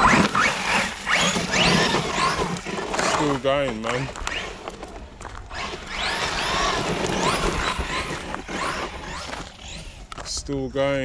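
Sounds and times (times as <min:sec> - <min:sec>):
electric motor whining: 0:00.0 - 0:10.3.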